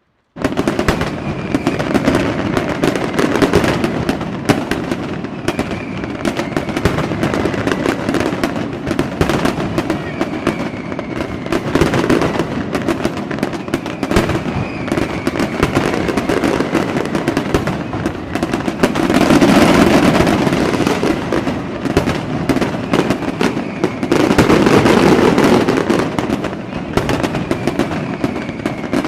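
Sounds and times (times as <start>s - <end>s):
fireworks bangs and crackling: 0.0s - 29.0s
faint rising whistles: 5.4s - 6.9s, 10.0s - 11.5s, 13.6s - 16.8s.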